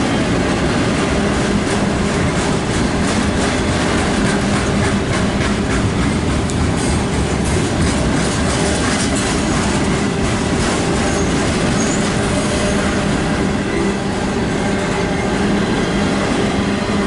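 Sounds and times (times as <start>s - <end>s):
train wheels rumbling on rails: 0.0s - 17.0s
wheels clicking over rail joints: 0.9s - 13.2s.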